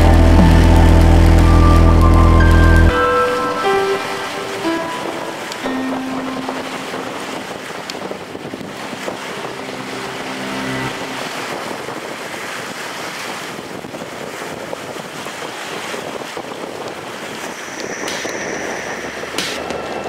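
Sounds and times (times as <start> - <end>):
waves washing: 0.0 - 20.0
wind rushing over microphone: 0.0 - 20.0.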